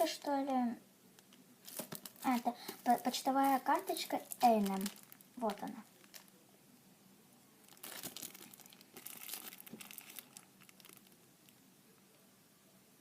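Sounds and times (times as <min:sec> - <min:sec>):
packaging crinkling: 0:01.2 - 0:06.4, 0:07.6 - 0:11.6.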